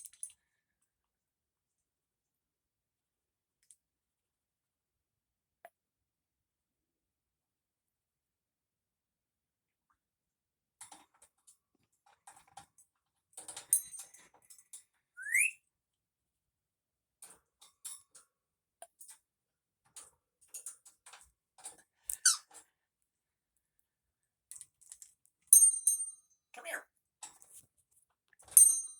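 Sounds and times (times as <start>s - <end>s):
bird whistling: 15.2s - 15.6s
pet bird squeaks and chirps: 15.2s - 15.6s, 22.1s - 22.5s.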